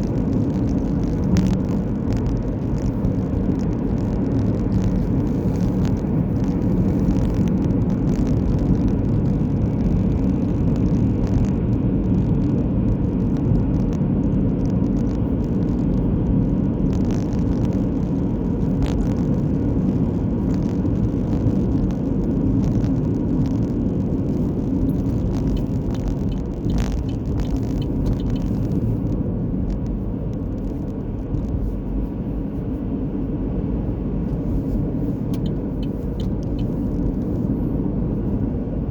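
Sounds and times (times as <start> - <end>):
car driving rumble: 0.0 - 38.9
faint clicks: 24.4 - 31.6.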